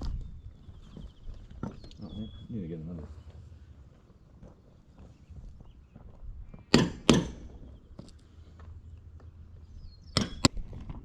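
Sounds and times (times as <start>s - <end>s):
sharp knocks: 6.7s - 7.7s.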